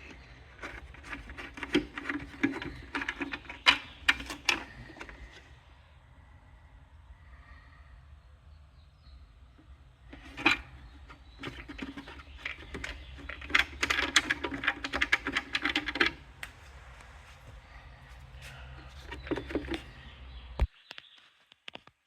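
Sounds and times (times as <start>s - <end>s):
low steady hum: 0.0s - 20.7s
clatter of small clicks: 10.2s - 16.6s.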